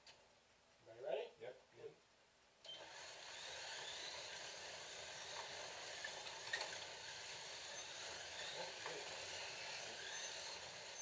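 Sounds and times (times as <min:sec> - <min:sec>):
slot car motors whirring: 0:02.7 - 0:11.0.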